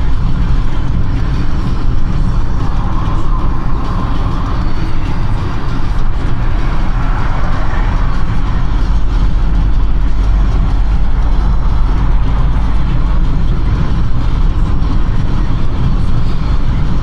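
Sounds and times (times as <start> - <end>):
car tyre and road rumble: 0.0 - 17.0.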